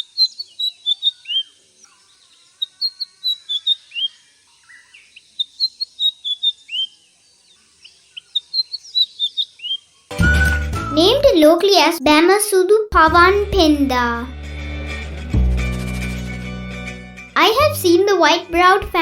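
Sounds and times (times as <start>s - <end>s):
bird singing high whistled notes: 0.0s - 7.0s, 7.8s - 11.3s.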